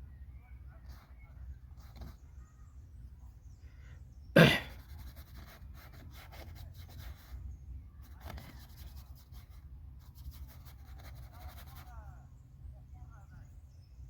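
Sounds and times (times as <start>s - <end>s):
person coughing: 4.4s - 4.7s.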